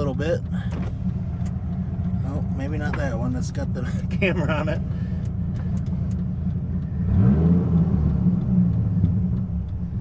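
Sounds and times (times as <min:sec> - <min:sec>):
car engine accelerating: 0:00.5 - 0:10.0.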